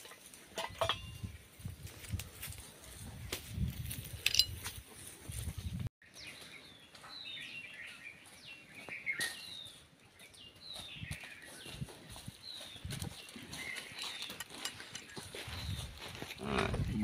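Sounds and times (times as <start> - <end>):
small birds chirping: 5.6 - 17.0
low rumble on microphone: 15.6 - 17.0.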